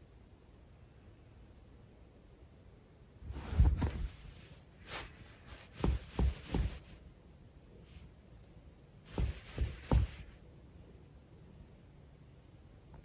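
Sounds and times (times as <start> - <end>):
soft dull thumps: 3.4 - 4.4, 5.5 - 7.0, 9.1 - 10.4.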